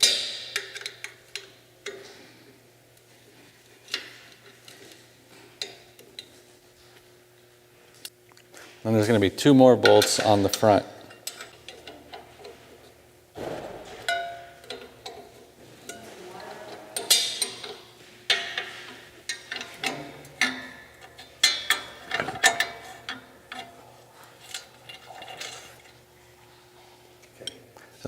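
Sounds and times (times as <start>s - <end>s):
wrench clinking on steel bolts: 14.0s - 16.0s, 17.0s - 23.8s.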